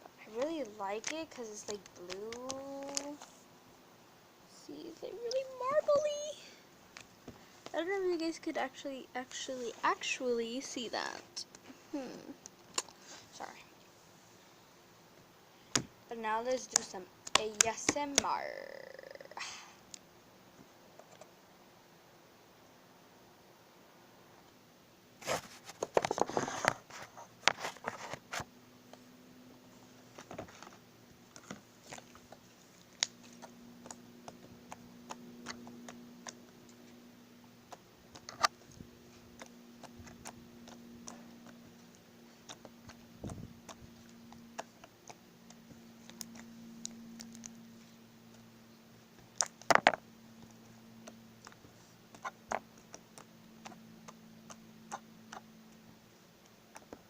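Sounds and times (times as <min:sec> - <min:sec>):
slime crackling: 0:00.3 - 0:03.3
sticky clicks and pops: 0:00.4 - 0:03.2.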